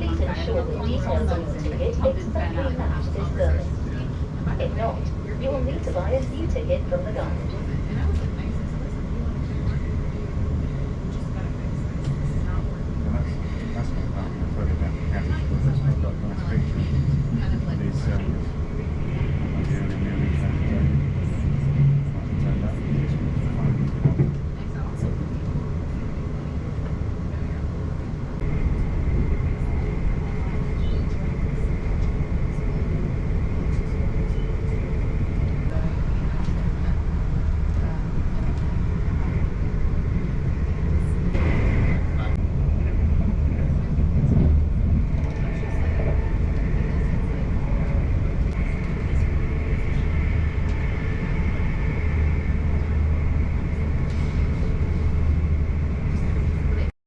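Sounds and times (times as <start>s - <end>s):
train rumbling on track: 0.0s - 56.9s.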